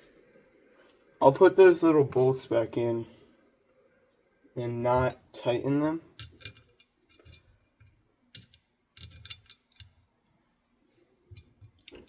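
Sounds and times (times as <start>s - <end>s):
metal bolts clicking and clinking: 6.1s - 10.4s, 11.3s - 12.0s.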